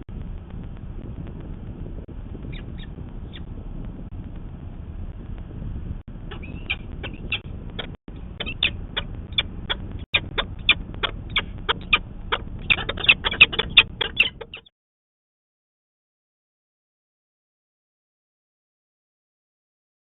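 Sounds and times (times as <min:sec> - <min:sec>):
low background rumble: 0:00.0 - 0:14.7
falcon calling: 0:02.5 - 0:03.5, 0:06.3 - 0:14.7.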